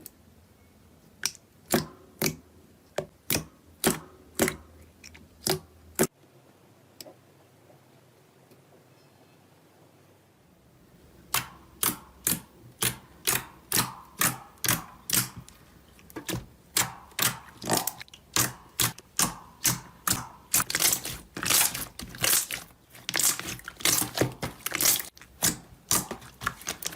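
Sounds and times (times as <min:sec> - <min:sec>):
crunchy material crushed by hand: 0:19.6 - 0:26.9.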